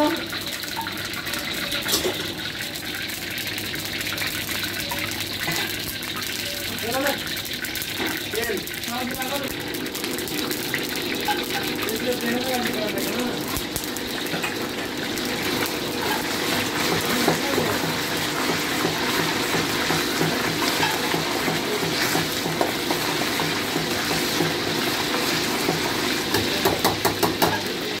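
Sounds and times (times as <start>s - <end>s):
batter frying in hot oil: 0.0s - 28.0s.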